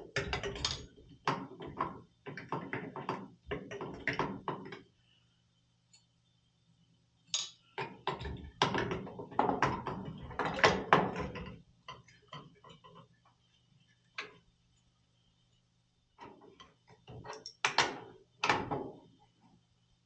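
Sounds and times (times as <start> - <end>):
metal parts and tools clattering: 0.2 - 1.0, 7.3 - 7.6.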